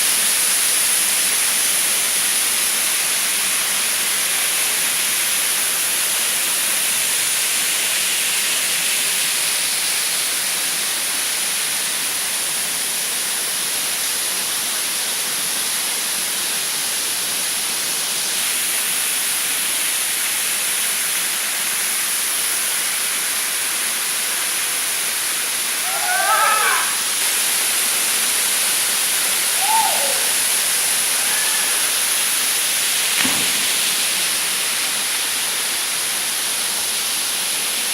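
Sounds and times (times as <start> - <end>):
waterfall rushing: 21.3 - 37.7.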